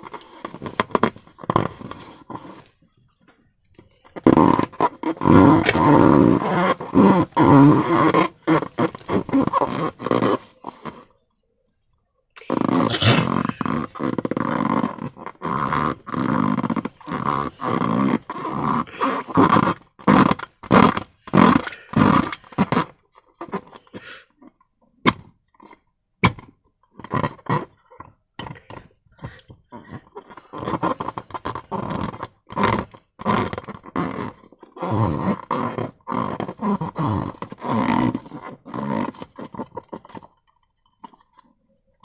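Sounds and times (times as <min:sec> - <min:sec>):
slime squelching against balloon: 0:12.4 - 0:22.8.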